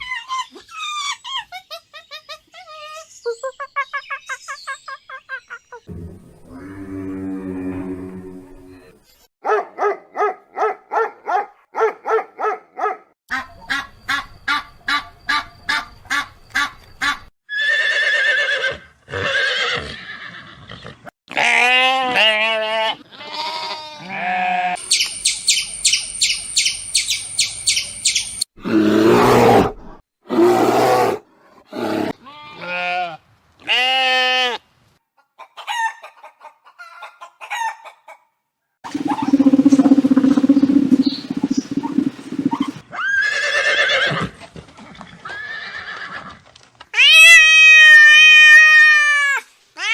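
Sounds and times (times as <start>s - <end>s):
short pulsed animal calls: 38.9s - 42.8s.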